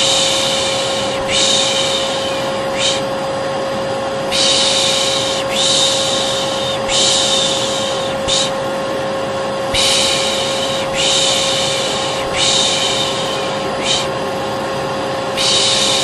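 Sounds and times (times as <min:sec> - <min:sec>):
person shushing: 0:00.0 - 0:03.2, 0:04.3 - 0:08.6, 0:09.7 - 0:14.2, 0:15.3 - 0:16.0
vacuum cleaner humming: 0:00.0 - 0:16.0.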